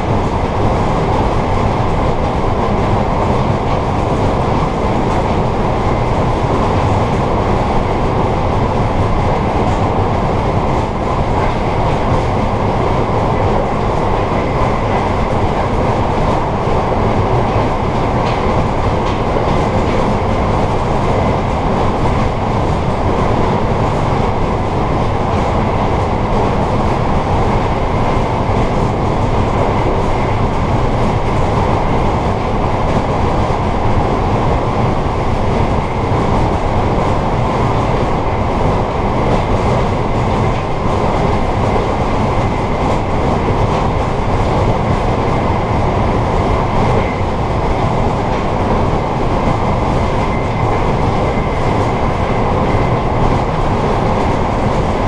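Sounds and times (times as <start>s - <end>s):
train wheels rumbling on track: 0.0s - 55.0s.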